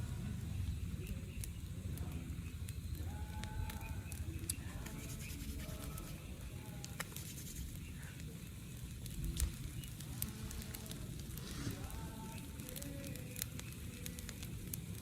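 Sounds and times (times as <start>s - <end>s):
faint whistly tones: 0.0s - 15.0s
wind and rain rumble: 0.0s - 15.0s
sharp ticks: 1.0s - 11.3s.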